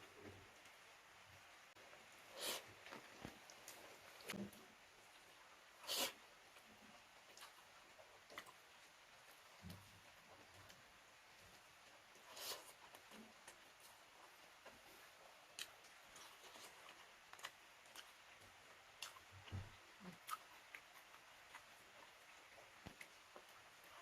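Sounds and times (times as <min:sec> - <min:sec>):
chewing clicks and smacks: 0:15.5 - 0:24.0.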